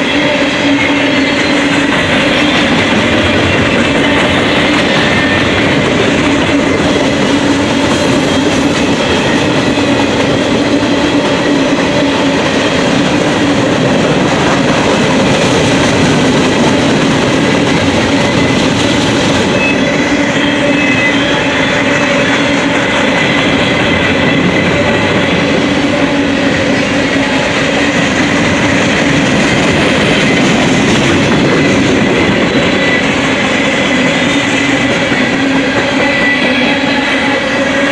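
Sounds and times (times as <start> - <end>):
freight train wheels rumbling on rail: 0.0 - 37.9
faint thin squeal: 19.3 - 25.5, 32.6 - 37.9.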